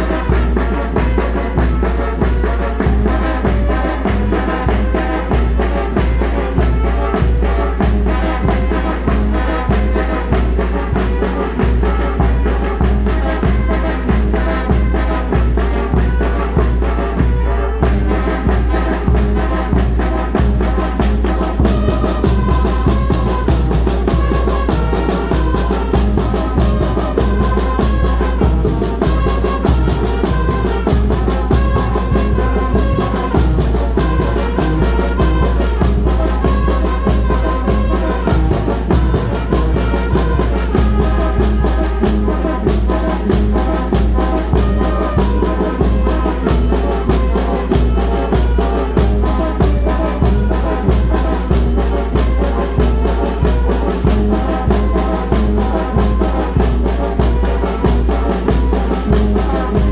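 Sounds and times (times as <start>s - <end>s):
steady drum beat: 0.0s - 20.2s, 21.6s - 59.9s
deep bass line: 0.0s - 21.8s
brass band playing: 0.0s - 59.9s.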